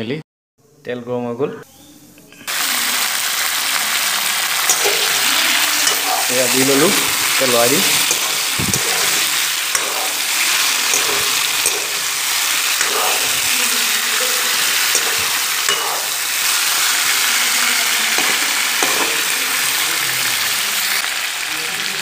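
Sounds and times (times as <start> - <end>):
meat sizzling in hot oil: 2.5 - 22.0
metal ladle scraping pan: 4.6 - 17.4, 18.0 - 19.5.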